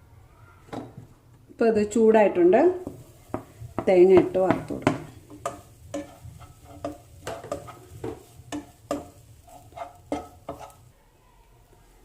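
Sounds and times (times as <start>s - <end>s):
light sizzle: 0.5s - 12.0s
utensil scraping and knocking pan: 2.8s - 10.9s.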